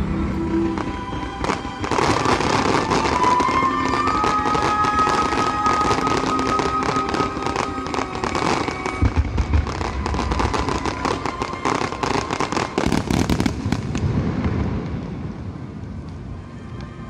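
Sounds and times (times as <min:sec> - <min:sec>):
fireworks cracks and pops: 0:00.7 - 0:16.9
deep firework booms: 0:09.0 - 0:11.6, 0:12.7 - 0:15.9.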